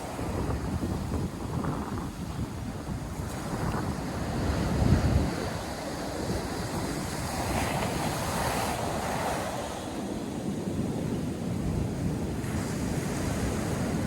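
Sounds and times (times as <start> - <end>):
waves breaking on beach: 0.0 - 14.0
wind buffeting microphone: 0.0 - 14.0.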